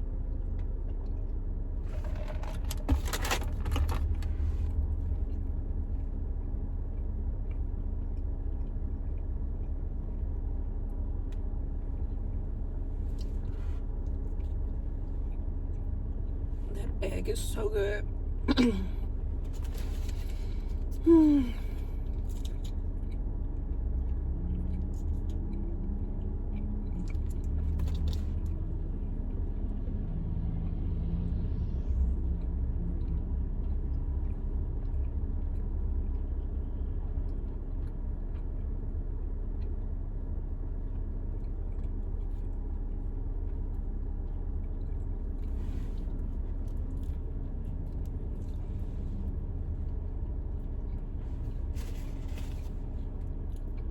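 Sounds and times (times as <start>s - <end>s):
car idling rumble: 0.0s - 53.9s
faint chewing: 19.1s - 53.9s
person humming mm: 21.0s - 21.7s.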